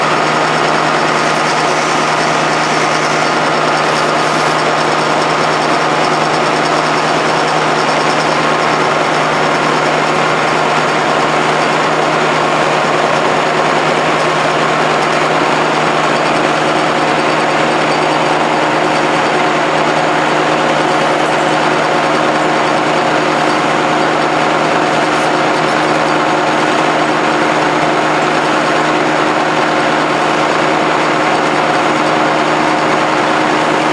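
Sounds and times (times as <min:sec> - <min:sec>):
milling machine humming: 0:00.0 - 0:33.9.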